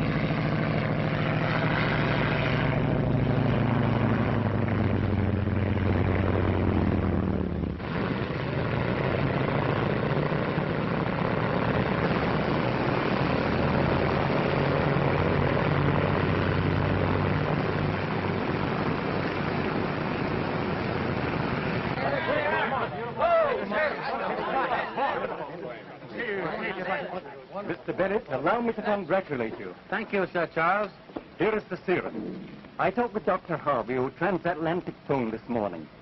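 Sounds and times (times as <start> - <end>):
propeller airplane engine running: 0.0 - 22.0.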